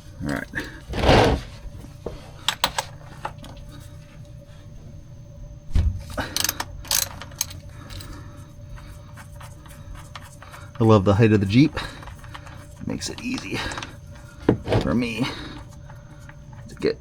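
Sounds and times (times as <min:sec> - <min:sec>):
wrench clicking: 0:06.3 - 0:08.1.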